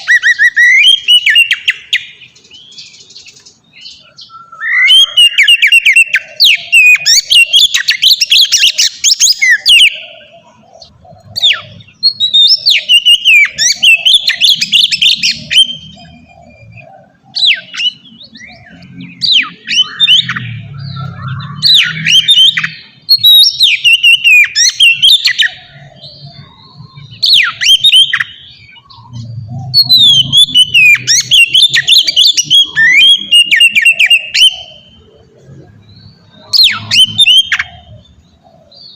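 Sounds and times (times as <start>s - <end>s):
magpie-robin singing: 0.0s - 38.9s.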